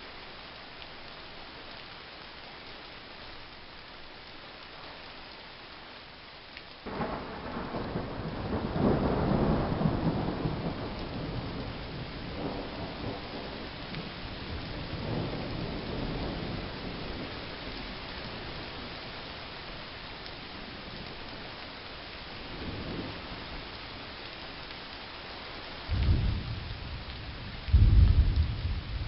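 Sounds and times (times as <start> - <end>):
rain drumming on car windscreen: 6.7 - 29.0.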